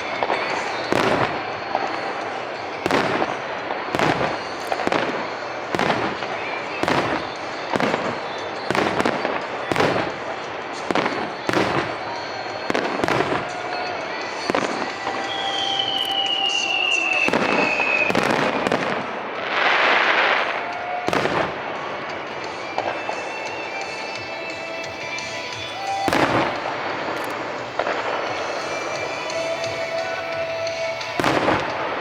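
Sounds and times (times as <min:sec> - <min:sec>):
fireworks bursting with echo: 0:00.0 - 0:32.0.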